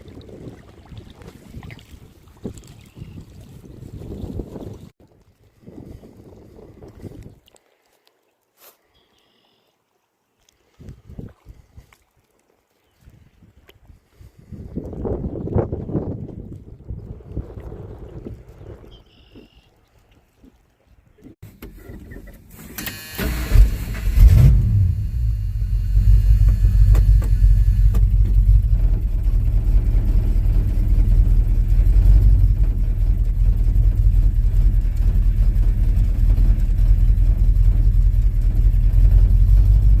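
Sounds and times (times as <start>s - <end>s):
truck engine starting and idling: 21.4s - 40.0s.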